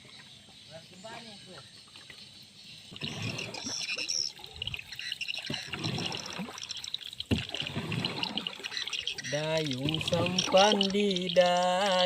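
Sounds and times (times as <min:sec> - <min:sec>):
paddle splashing in water: 0:02.9 - 0:12.0.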